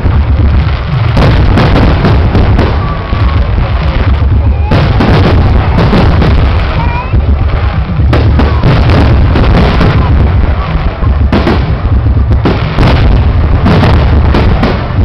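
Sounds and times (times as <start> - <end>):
fireworks crackling: 0.0 - 15.0
low rumble of booms: 0.0 - 15.0.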